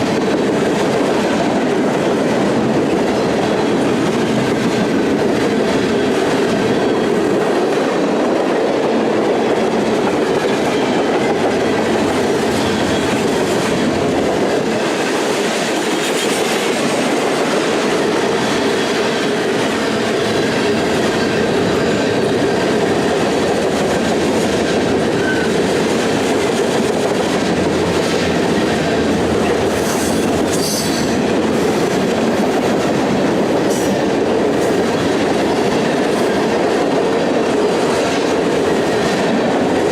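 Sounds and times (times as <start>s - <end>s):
freight train cars rumbling past: 0.0s - 39.9s
high wheel squeals: 12.1s - 13.3s.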